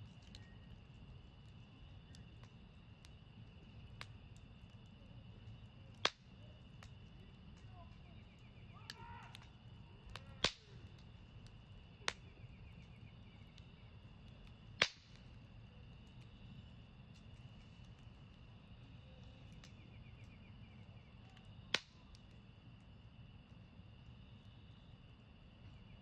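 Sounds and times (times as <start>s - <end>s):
campfire crackling: 0.0s - 26.0s
sharp pops of burning wood: 0.0s - 26.0s.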